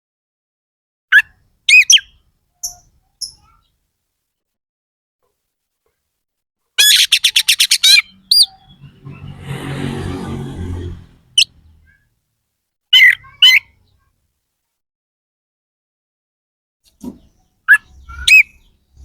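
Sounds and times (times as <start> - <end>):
bird harsh rasping call: 6.8 - 11.9.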